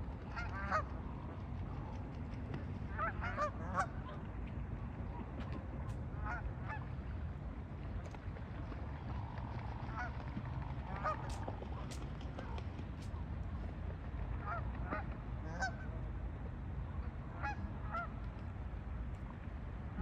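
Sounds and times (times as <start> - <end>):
steady low rumble: 0.0 - 20.0
geese honking: 2.9 - 4.0, 9.8 - 10.1, 14.4 - 15.9, 17.4 - 18.1.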